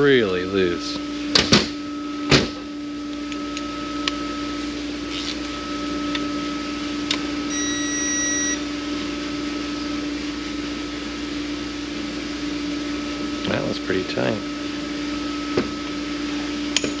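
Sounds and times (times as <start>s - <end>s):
low shop hum: 0.0s - 17.0s
high electronic beep: 7.5s - 8.6s.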